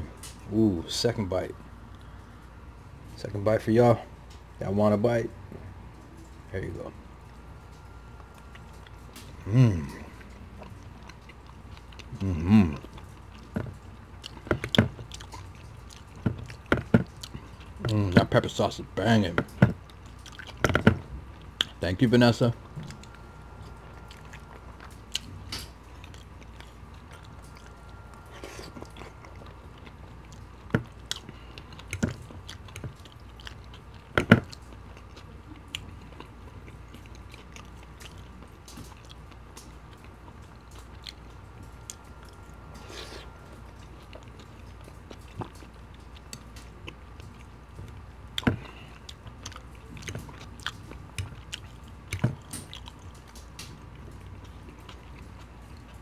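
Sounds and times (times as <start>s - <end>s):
person chewing food: 7.3s - 18.3s, 19.5s - 21.8s, 22.6s - 56.0s.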